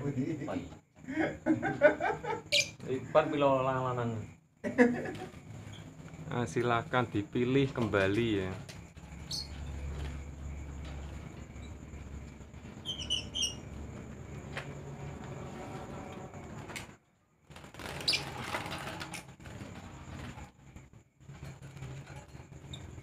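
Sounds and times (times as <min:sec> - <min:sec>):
lovebirds chirping: 0:02.4 - 0:03.0, 0:08.4 - 0:10.3, 0:11.0 - 0:13.9, 0:17.9 - 0:18.4.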